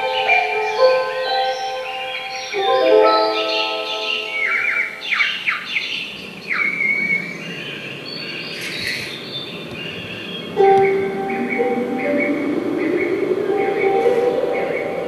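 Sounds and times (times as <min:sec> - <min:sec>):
recorded birds chirping: 0:00.0 - 0:15.0.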